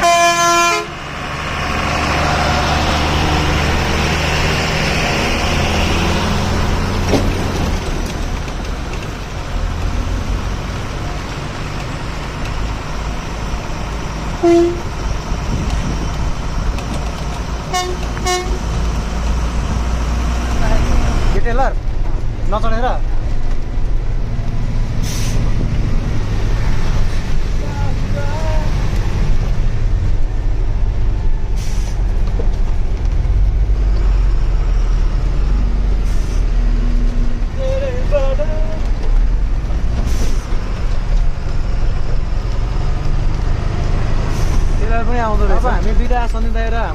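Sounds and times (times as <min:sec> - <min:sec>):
vehicle horn toots: 0:00.0 - 0:00.9, 0:14.4 - 0:14.9, 0:17.7 - 0:18.6
truck engine and road rumble: 0:00.0 - 0:46.9
air brake hisses: 0:25.0 - 0:25.5, 0:31.6 - 0:32.0.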